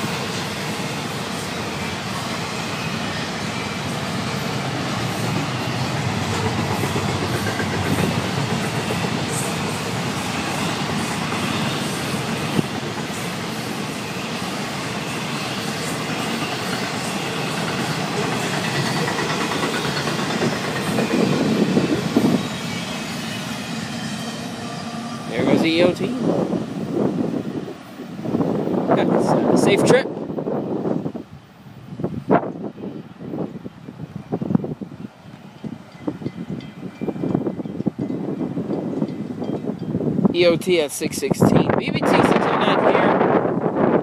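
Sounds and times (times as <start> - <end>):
steel wheels rumbling on rail: 0.0 - 44.0
wheels clicking over rail joints: 16.4 - 21.6.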